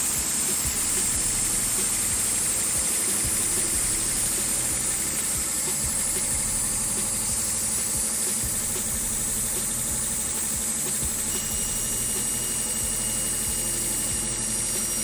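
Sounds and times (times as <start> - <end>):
faint high whine: 0.0 - 15.0
machine running with low hum: 0.0 - 15.0.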